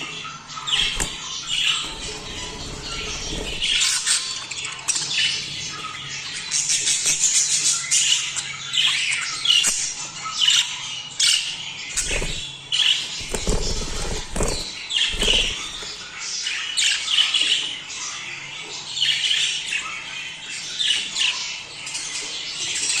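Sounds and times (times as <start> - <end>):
budgerigars chattering: 0.0 - 18.4.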